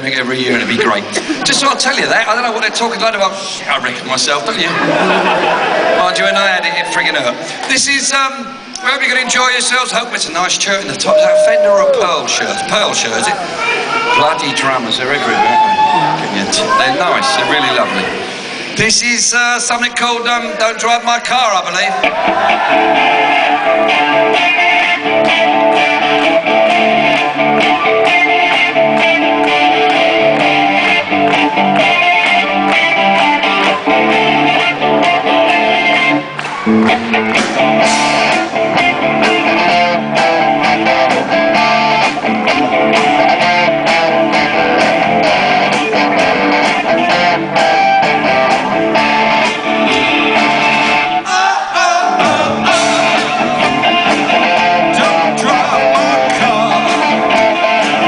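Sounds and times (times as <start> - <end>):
steady drum beat: 22.0 - 51.0, 52.1 - 58.0
electric guitars strumming: 22.0 - 51.3, 52.0 - 58.0.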